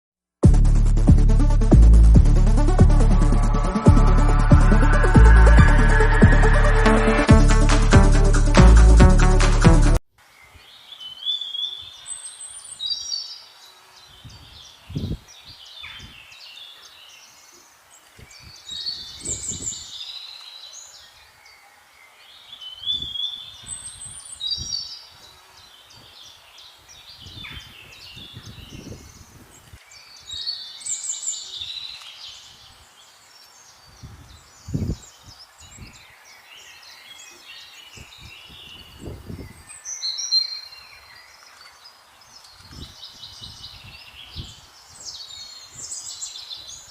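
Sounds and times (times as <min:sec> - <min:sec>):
songbirds singing: 0:10.2 - 0:46.9.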